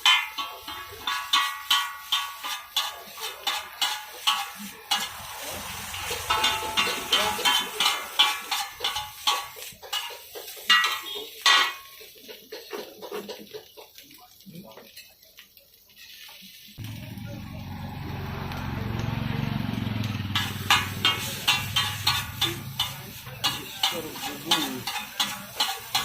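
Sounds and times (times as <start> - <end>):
metal spatula clanging on wok: 0.0 - 14.0, 20.0 - 26.0
frying sizzle: 0.0 - 26.0.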